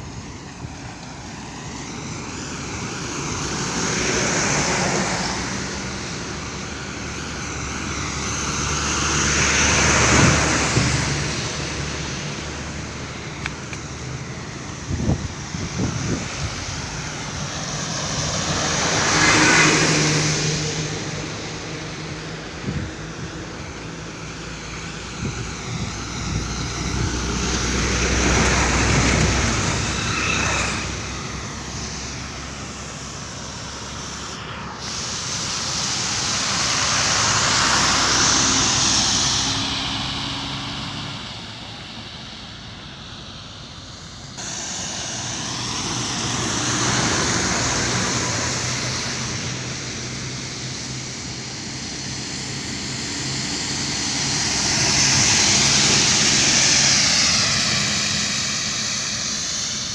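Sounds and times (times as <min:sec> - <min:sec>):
vehicles passing on road: 0:00.0 - 0:59.9.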